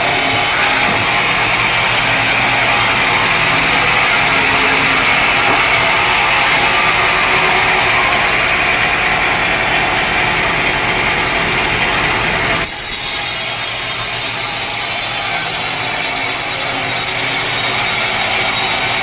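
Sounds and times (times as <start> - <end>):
sawmill saw cutting wood: 0.0 - 19.0.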